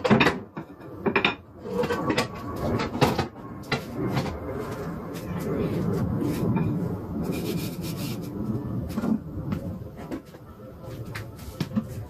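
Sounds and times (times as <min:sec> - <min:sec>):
kitchen knocks and clatter: 0:00.0 - 0:04.4
low background rumble: 0:00.9 - 0:12.0.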